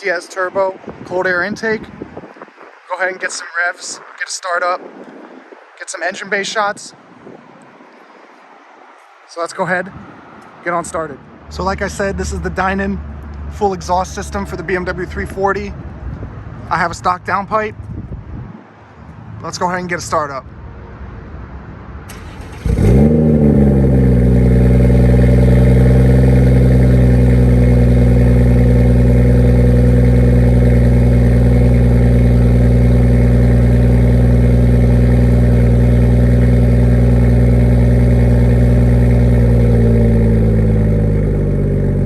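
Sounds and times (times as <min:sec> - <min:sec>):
car engine starting and idling: 0:22.0 - 0:42.0.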